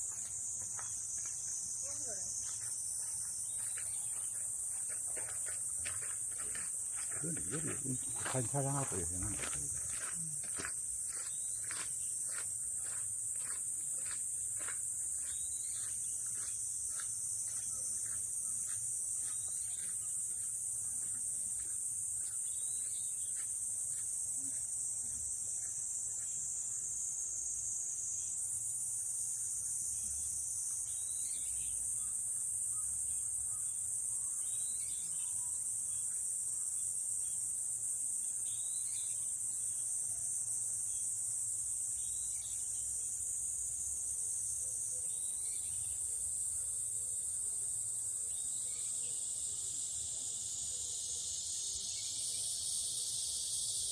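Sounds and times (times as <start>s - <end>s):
insects chorus: 0.0s - 53.9s
bird chirp: 0.7s - 21.1s.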